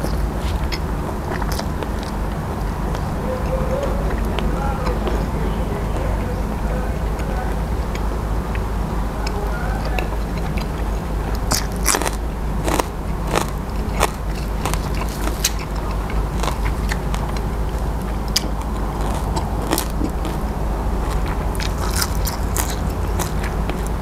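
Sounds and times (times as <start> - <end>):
crunching raw vegetables: 0.0 - 24.0
steady low hum: 0.0 - 24.0
wet chewing: 0.0 - 24.0.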